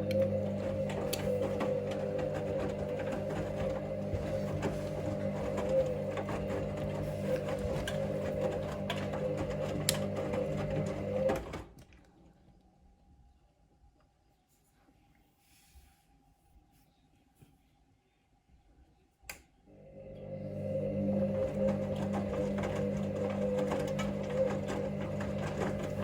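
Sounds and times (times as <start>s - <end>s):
washing machine motor hum: 0.0s - 12.2s, 19.7s - 26.0s.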